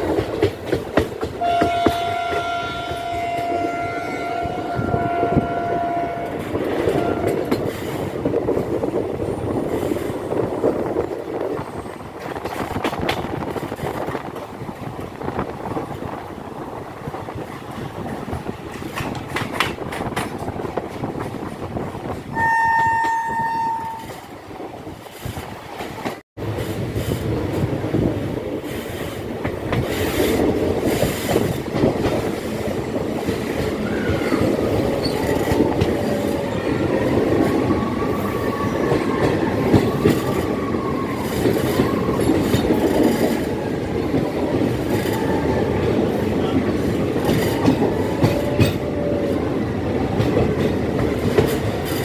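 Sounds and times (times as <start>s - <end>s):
train coaches rumbling: 0.0s - 52.0s
train horn blast: 1.4s - 7.6s, 22.3s - 24.2s
train wheels squealing: 33.8s - 36.6s.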